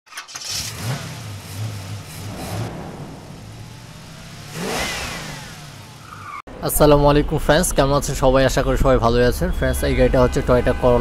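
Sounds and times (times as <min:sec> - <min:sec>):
car engine revving: 0:00.3 - 0:06.4.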